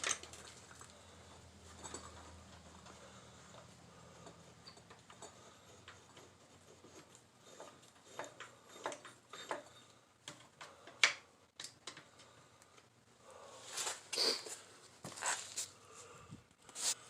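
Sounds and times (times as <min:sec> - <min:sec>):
metal parts clicking and knocking: 0:00.0 - 0:00.9, 0:03.6 - 0:12.3.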